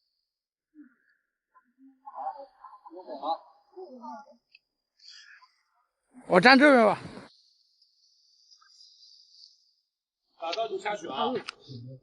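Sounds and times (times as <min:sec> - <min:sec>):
person speaking: 0:06.2 - 0:07.2.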